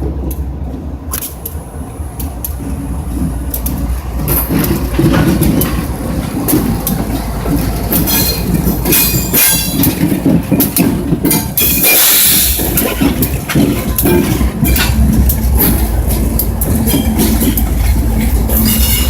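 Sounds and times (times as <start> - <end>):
train rumbling on rails: 0.0 - 19.0
wheels clicking over rail joints: 0.0 - 19.0
metallic wheel squeal: 7.9 - 9.9, 16.6 - 19.0.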